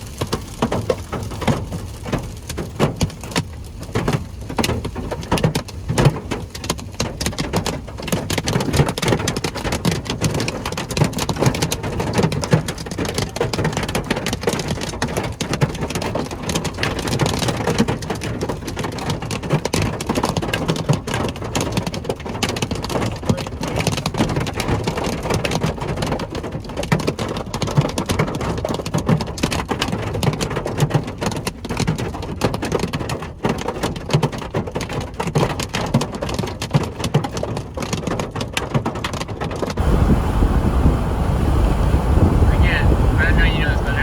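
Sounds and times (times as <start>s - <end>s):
rain and hail pelting a vehicle: 0.0s - 44.0s
loud low rumble: 39.8s - 44.0s.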